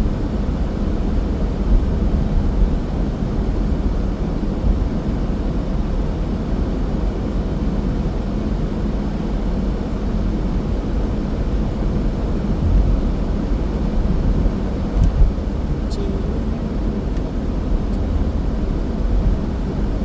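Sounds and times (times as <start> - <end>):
faint even hum: 9.0 - 20.0
car driving road noise: 9.9 - 20.0.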